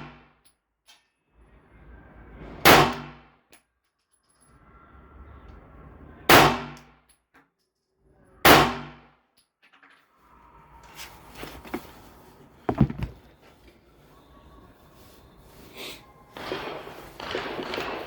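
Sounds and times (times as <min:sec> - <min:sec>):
pistol gunshots: 0:16.4 - 0:18.0.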